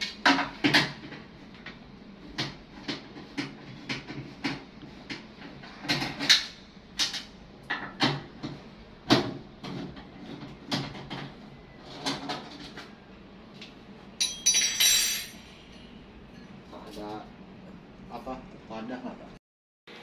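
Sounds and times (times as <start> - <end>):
ringing metallic clatter and scrape: 14.2 - 16.6.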